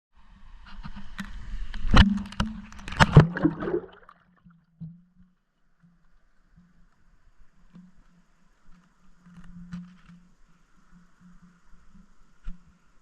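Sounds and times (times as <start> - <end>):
faint low underwater hum: 0.2 - 13.0
water splashing: 2.1 - 4.4.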